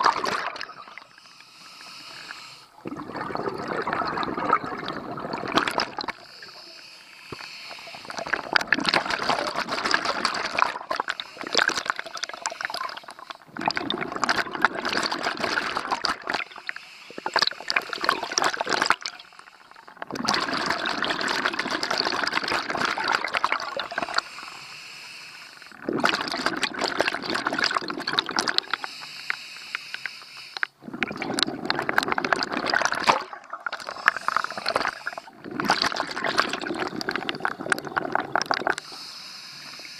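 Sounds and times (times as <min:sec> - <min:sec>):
diver inhaling: 0:01.2 - 0:02.8, 0:06.1 - 0:08.5, 0:24.0 - 0:25.8, 0:28.8 - 0:30.8, 0:33.8 - 0:35.4, 0:38.8 - 0:39.9.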